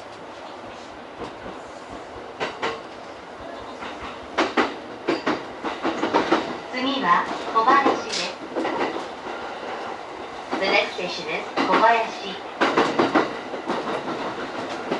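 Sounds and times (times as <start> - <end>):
train rumble: 0.0 - 14.9
wheels clacking over rail joints: 3.7 - 9.9, 11.5 - 14.9.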